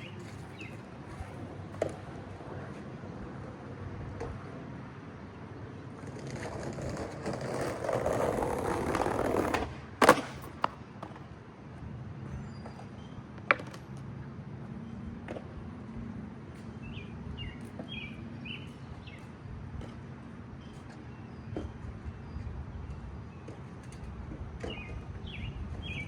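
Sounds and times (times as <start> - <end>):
skateboard clacking on ground: 0.0 - 4.6, 5.8 - 11.4, 12.5 - 14.2
skateboard wheels rolling on pavement: 0.0 - 26.0.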